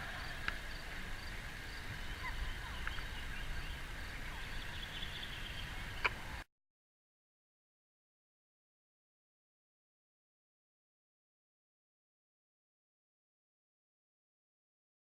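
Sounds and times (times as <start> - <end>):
birds chirping: 0.0 - 6.4
low outdoor background noise: 0.0 - 6.5.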